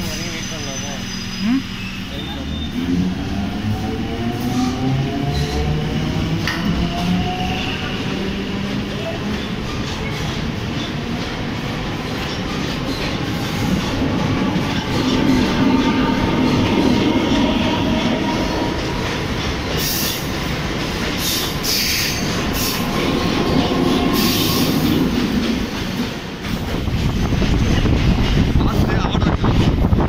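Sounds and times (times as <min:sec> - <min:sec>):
train wheels clattering on rails: 0:04.0 - 0:30.0
high squealing: 0:12.9 - 0:20.3.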